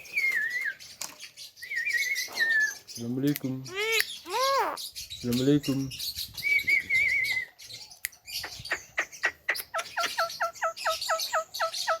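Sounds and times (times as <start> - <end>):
bird whistle: 0.0 - 0.8, 1.6 - 2.8, 6.4 - 7.6
myna calling: 3.6 - 5.0.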